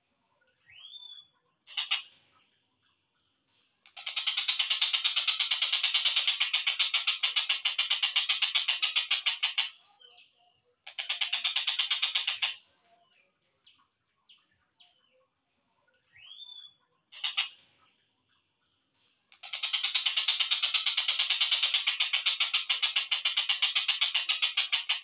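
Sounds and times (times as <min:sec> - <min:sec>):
faint bird chirps: 0:00.3 - 0:07.0, 0:09.0 - 0:22.9
bird rattling trills: 0:03.9 - 0:09.7, 0:19.4 - 0:25.0.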